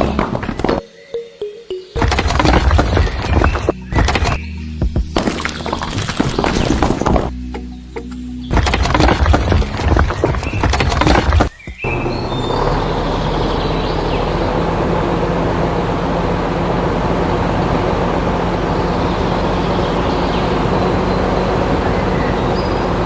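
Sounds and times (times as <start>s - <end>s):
vehicle engine humming: 1.2s - 23.0s.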